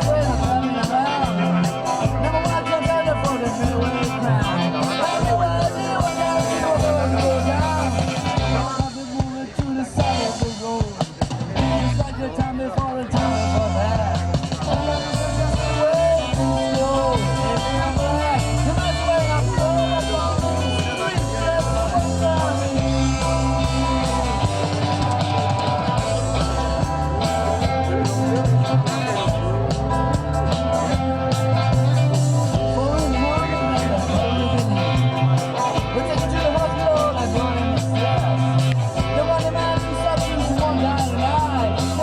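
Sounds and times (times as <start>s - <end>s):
held low bass notes: 0.0s - 8.8s, 13.2s - 42.0s
live rock band playing: 0.0s - 42.0s.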